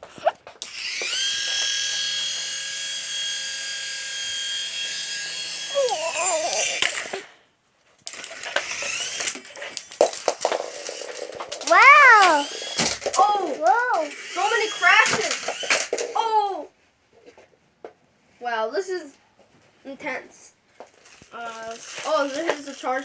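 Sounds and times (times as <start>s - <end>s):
toy propeller motor whine: 0.5s - 7.4s, 8.1s - 16.3s, 21.0s - 23.0s
toy knocking against things: 8.1s - 16.2s.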